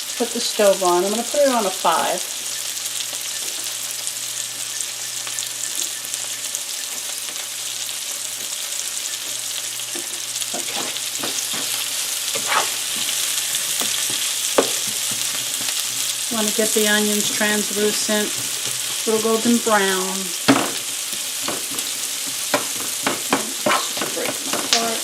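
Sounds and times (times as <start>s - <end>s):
onions sizzling in a frying pan: 0.0s - 25.0s
utensil scraping a pan: 9.9s - 16.2s, 20.7s - 25.0s.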